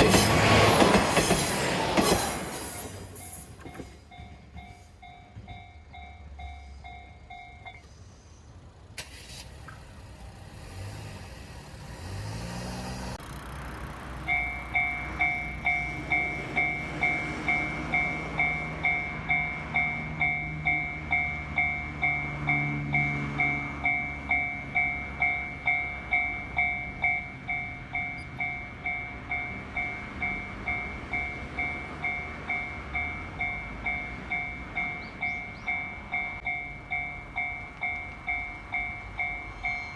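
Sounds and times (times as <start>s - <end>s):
train rumbling: 0.0s - 39.9s
low engine note rising: 9.1s - 25.8s.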